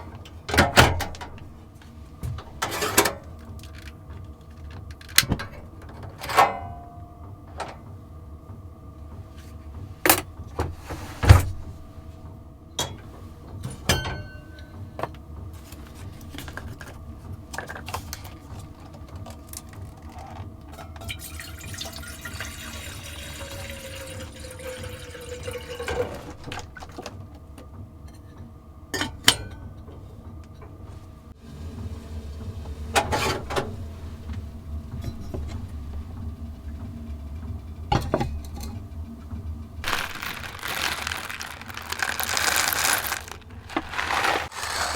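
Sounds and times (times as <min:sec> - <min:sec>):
water pouring into container: 0:21.2 - 0:26.3, 0:39.8 - 0:44.9.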